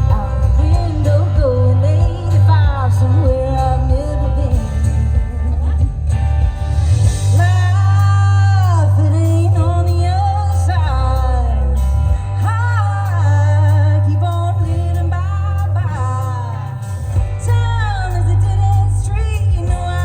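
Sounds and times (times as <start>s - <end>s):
strong bass line: 0.0s - 20.0s
woman singing country song: 0.0s - 20.0s.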